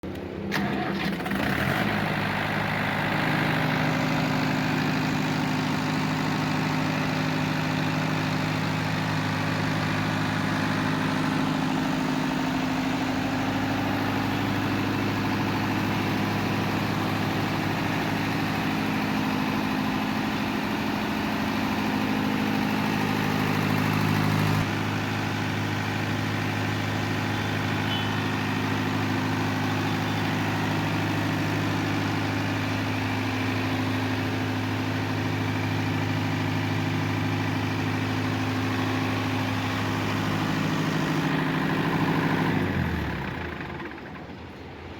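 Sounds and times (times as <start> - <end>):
diesel generator idling: 0.0 - 44.9.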